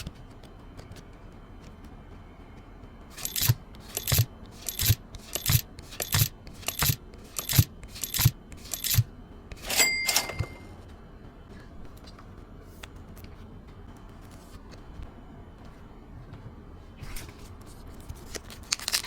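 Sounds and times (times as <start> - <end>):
trading cards slapping: 3.1 - 9.8, 18.0 - 19.0
cards sliding scrape: 3.2 - 9.8, 17.0 - 19.0.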